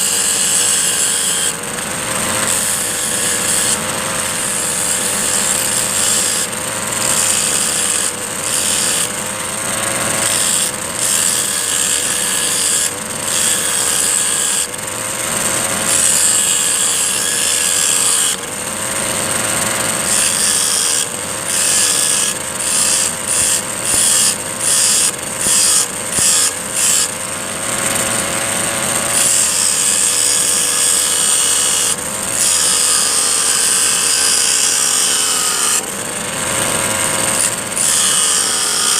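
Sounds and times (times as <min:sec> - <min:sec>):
abrasive disc grinding steel: 0:00.0 - 0:38.9
brush cutter engine running: 0:06.5 - 0:35.0, 0:35.8 - 0:38.8.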